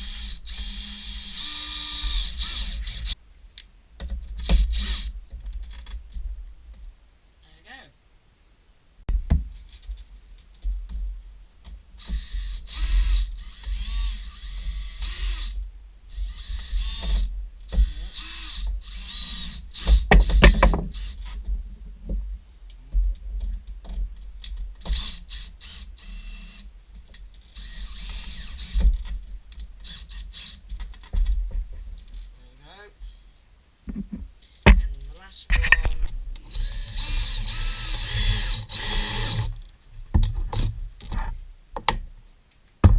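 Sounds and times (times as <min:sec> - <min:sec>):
power drill running: 0:00.0 - 0:03.2, 0:12.0 - 0:15.6, 0:16.2 - 0:21.2, 0:24.9 - 0:26.6, 0:27.6 - 0:28.8, 0:36.5 - 0:39.5
knocks and handling noise: 0:30.6 - 0:32.3, 0:33.8 - 0:36.2, 0:42.7 - 0:42.9.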